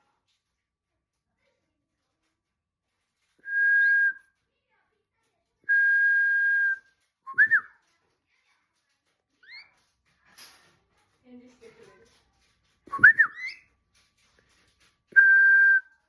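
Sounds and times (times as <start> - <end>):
bird whistling: 12.9 - 13.6.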